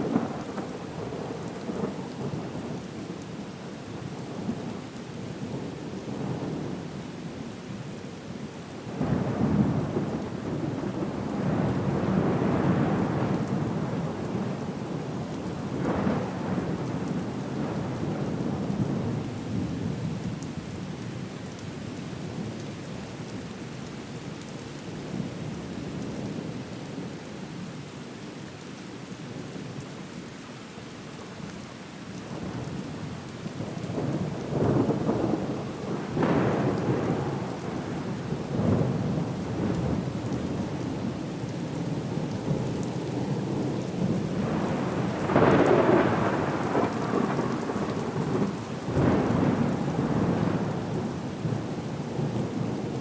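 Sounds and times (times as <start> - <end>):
steady rain: 0.0 - 53.0
rolling thunder: 34.0 - 40.8, 42.0 - 52.9.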